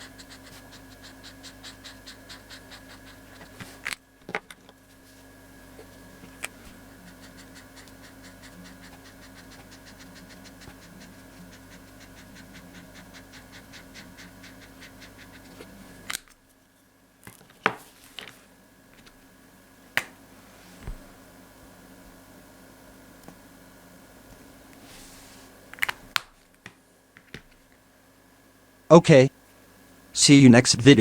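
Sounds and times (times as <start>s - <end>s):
scribbling on paper: 0.0s - 3.8s, 5.8s - 16.1s.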